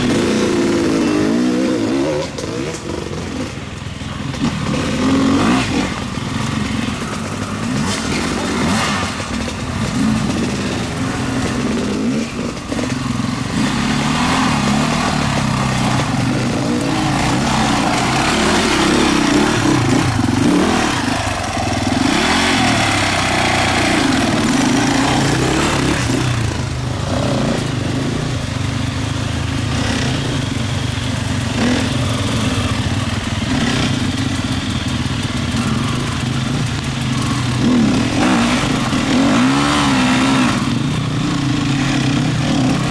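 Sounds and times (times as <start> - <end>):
motorcycle engines revving: 0.0 - 42.9.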